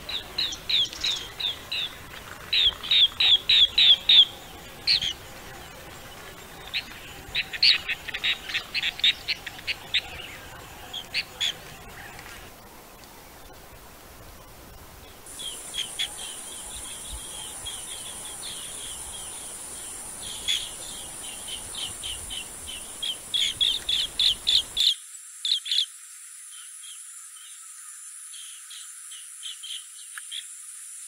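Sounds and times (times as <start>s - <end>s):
bee-eaters chirping: 0.0s - 5.2s, 15.3s - 25.0s
high-pitched insect drone: 15.3s - 31.0s.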